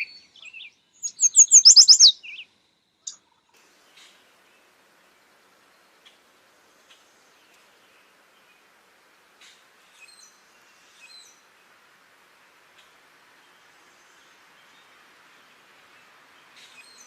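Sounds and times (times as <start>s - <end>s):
faint bird chirps: 0.0s - 2.5s
steady hiss: 3.5s - 17.0s.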